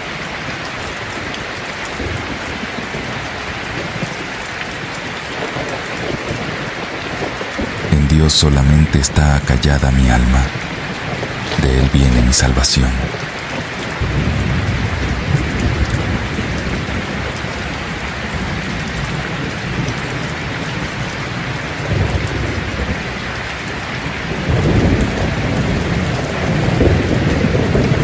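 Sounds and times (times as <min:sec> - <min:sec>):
rain falling: 0:00.0 - 0:28.0
low rolls of thunder: 0:13.0 - 0:28.0.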